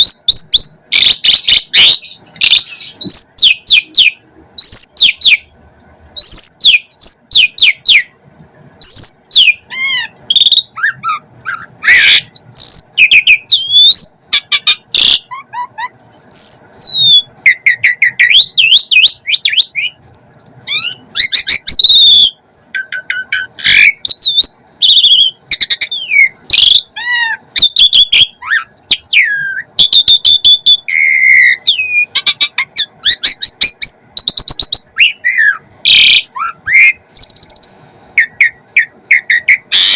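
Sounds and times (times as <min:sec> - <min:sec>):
starling singing: 0:00.0 - 0:05.6, 0:06.2 - 0:08.2, 0:08.8 - 0:39.9.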